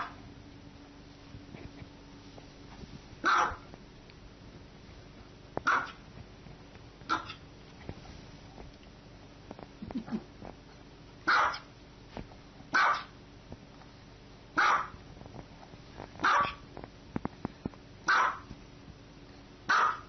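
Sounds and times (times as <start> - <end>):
small dog barking: 3.2 - 3.7, 5.6 - 6.0, 7.1 - 7.4, 11.2 - 11.7, 12.7 - 13.2, 14.6 - 15.0, 16.2 - 16.6, 18.0 - 18.5, 19.7 - 20.0.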